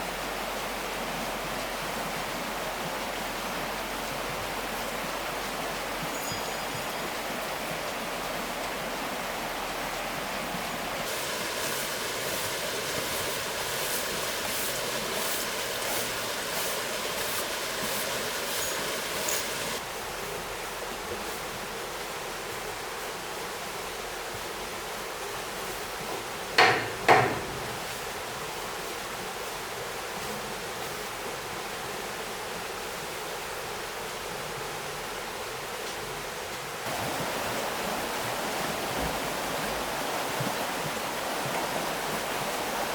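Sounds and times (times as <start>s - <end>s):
stream water flowing: 0.0s - 42.9s
even knocks: 26.6s - 27.9s
sharp loud knocks: 26.6s - 27.9s.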